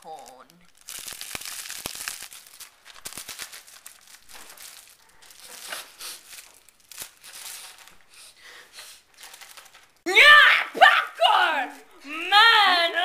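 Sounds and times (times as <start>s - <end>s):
popcorn bag crinkling: 0.0s - 8.2s, 9.1s - 10.0s.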